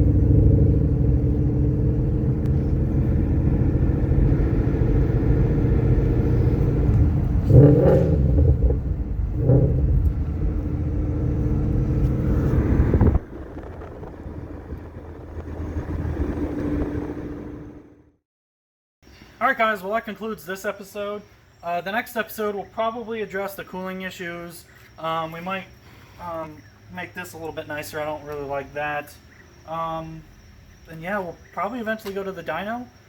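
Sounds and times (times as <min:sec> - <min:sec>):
car engine running: 0:00.0 - 0:18.1.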